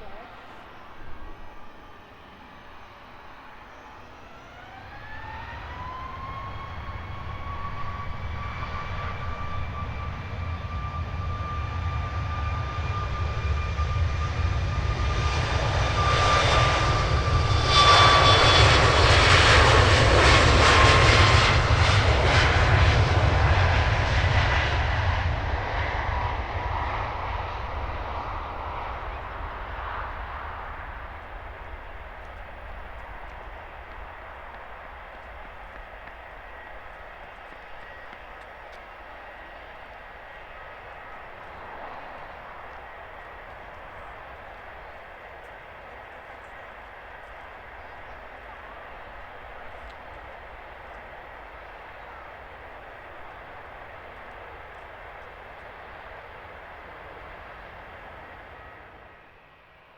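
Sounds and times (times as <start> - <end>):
jet engine roar: 0.0 - 59.9
jet engine whine: 0.0 - 59.9.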